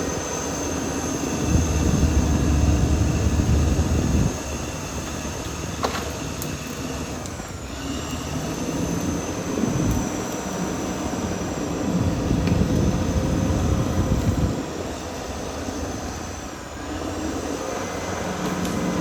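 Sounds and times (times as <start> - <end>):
bulldozer diesel engine rumbling: 0.0 - 8.8.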